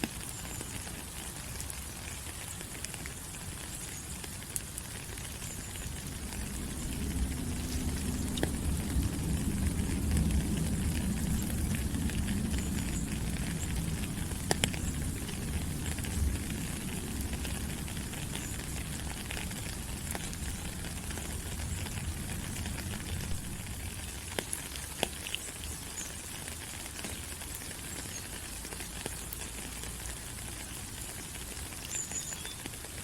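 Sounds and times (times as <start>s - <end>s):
rain on foliage: 0.0s - 33.0s
low rumble: 5.8s - 24.0s.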